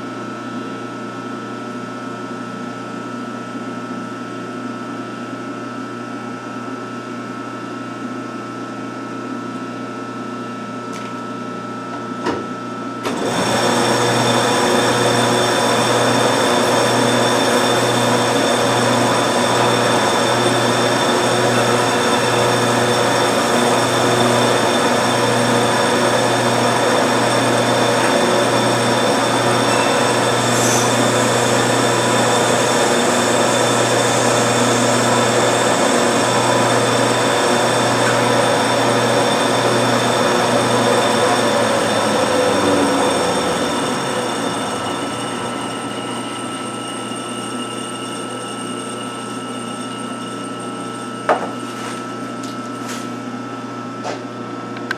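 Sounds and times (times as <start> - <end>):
quieter machine running noise: 0.0 - 54.9
lathe machine hum: 11.0 - 54.6.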